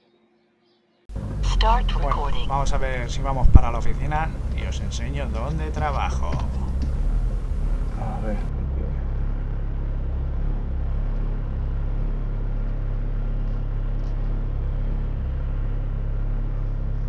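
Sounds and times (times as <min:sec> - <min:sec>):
cars passing: 0:01.1 - 0:13.6
car engine idling: 0:01.1 - 0:17.0.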